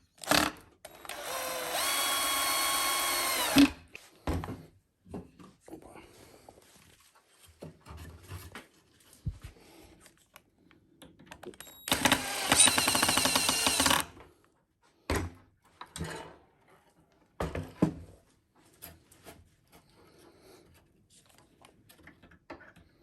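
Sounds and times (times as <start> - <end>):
electric drill running: 0.2 - 3.8, 11.8 - 14.1.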